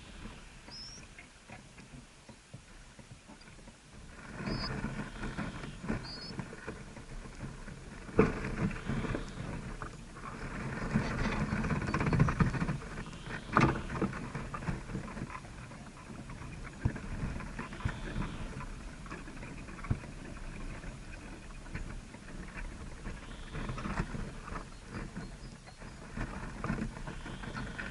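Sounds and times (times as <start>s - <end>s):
faint bird chirp: 0.0s - 1.2s, 4.4s - 6.4s, 11.3s - 14.0s, 23.1s - 26.1s
rustling and scratching: 0.0s - 27.9s.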